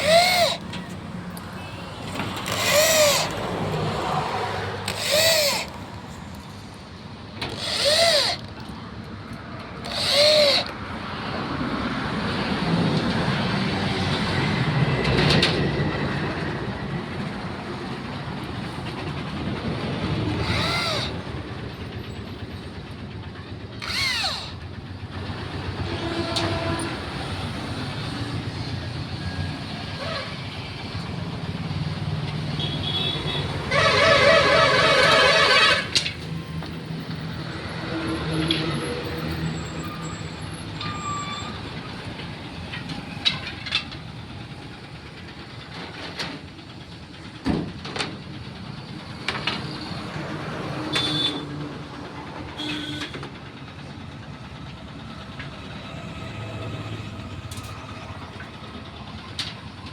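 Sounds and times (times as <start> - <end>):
power drill whining: 0.0 - 6.4, 7.4 - 8.7, 9.8 - 10.9, 20.3 - 21.4, 23.8 - 24.7, 33.7 - 36.2.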